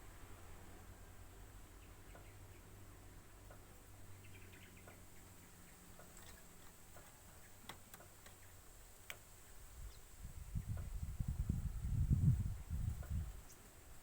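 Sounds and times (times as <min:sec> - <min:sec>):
faint clicks: 0:05.9 - 0:09.3.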